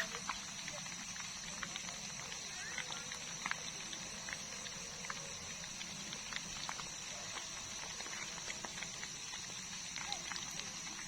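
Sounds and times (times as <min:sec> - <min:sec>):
insects trilling: 0:00.0 - 0:11.0
small clicks and ticks: 0:00.0 - 0:11.0.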